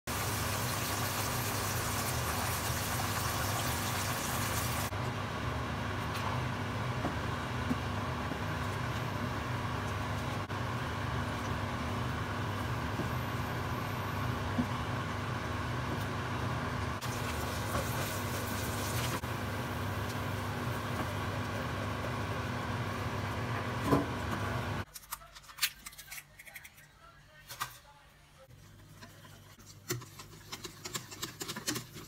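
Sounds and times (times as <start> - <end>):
chicken sizzling in frying oil: 0.0 - 4.9, 17.0 - 23.3.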